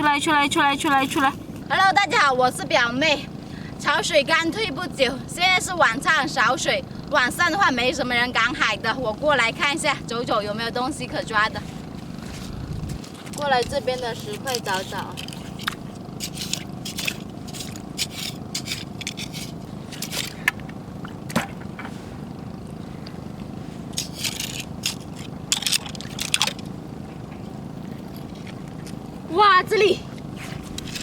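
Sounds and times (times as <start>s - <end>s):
rocks and shells crunching underfoot: 11.8s - 20.8s, 23.8s - 26.7s.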